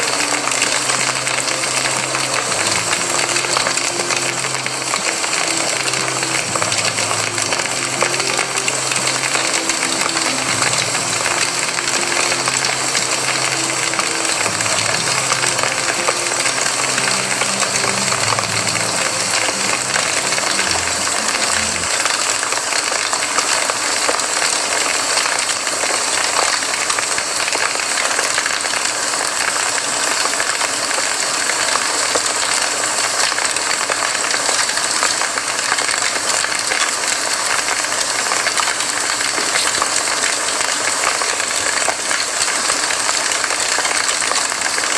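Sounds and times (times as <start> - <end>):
soft low musical notes: 0.0 - 23.1
campfire crackling and popping: 0.0 - 23.6.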